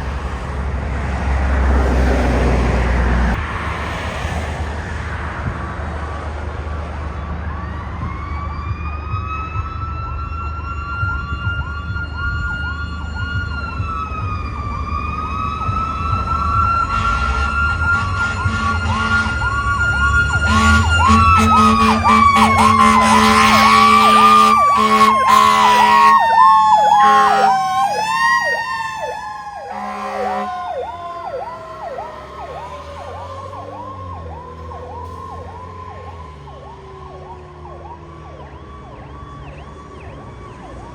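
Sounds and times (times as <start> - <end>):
slow wailing siren: 6.0 - 40.9
rapidly cycling yelp siren: 7.5 - 40.9
horn blasts: 16.8 - 28.0, 29.5 - 32.6.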